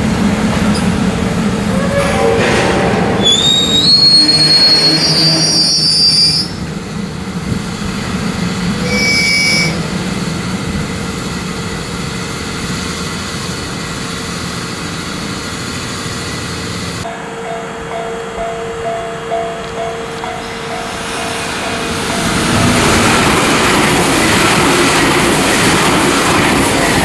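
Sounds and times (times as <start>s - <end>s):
train rumble and hiss: 0.0s - 27.0s
train wheels squealing on rails: 1.6s - 6.7s, 8.6s - 10.0s, 20.2s - 23.4s.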